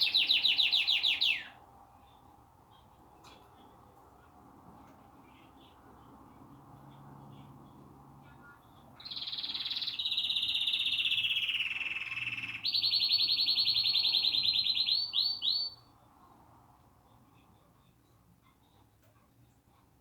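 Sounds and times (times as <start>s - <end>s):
canary singing trills: 0.0s - 1.6s, 9.0s - 15.9s.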